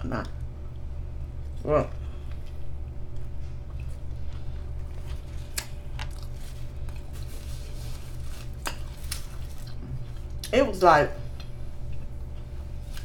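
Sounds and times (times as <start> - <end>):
steady low hum: 0.0 - 13.0
person chewing: 0.8 - 10.5.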